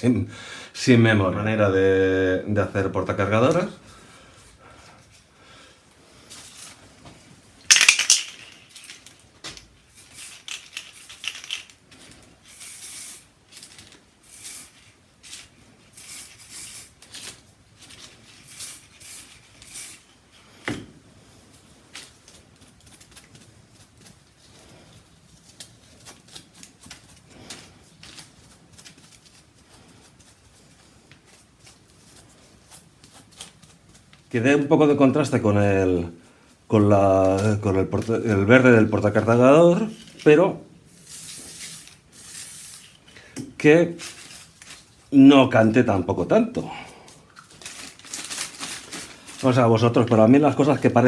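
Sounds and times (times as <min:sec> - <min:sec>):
plastic pieces clattering: 0:07.6 - 0:12.8, 0:47.3 - 0:51.0.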